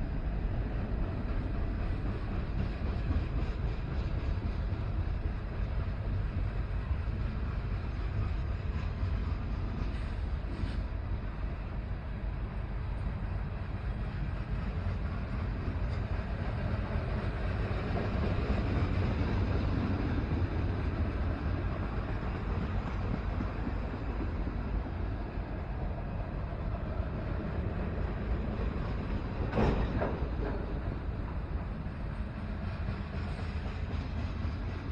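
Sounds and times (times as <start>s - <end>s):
train wheels rumbling on track: 0.0s - 34.9s.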